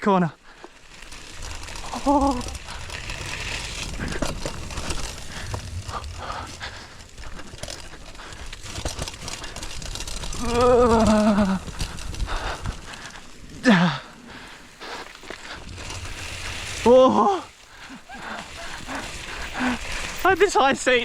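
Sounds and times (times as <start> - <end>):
bicycle tyres crunching over gravel: 0.0 - 21.0
bicycle frame rattling: 0.4 - 21.0
wind rumbling on microphone: 1.0 - 13.7.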